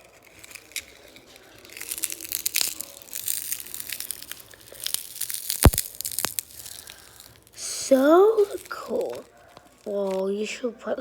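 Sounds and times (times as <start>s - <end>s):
glass crackling and crunching: 0.0s - 10.8s
loud sharp glass snap: 5.0s - 6.5s.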